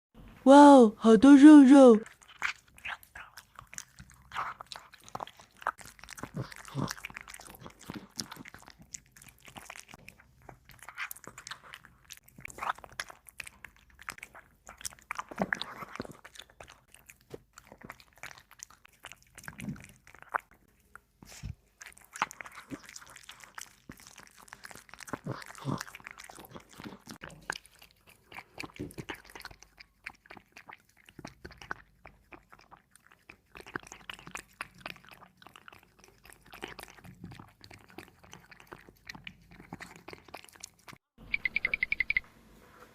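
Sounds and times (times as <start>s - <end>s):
cat chewing and crunching meat: 2.0s - 42.2s.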